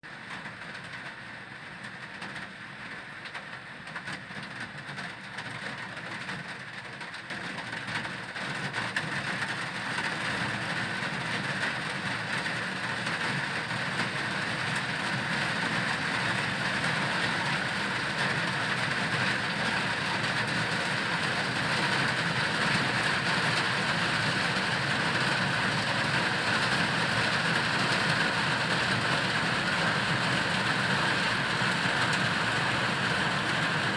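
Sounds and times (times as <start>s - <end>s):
heavy rain pouring: 9.1s - 33.9s
heavy engine idling: 14.2s - 33.9s.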